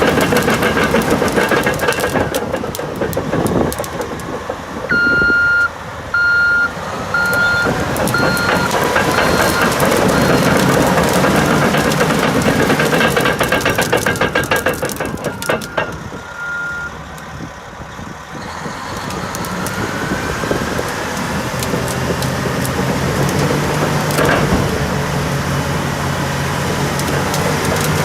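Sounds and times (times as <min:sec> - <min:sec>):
diesel engine droning: 0:00.0 - 0:28.0
diesel engine knocking idle: 0:07.6 - 0:16.1.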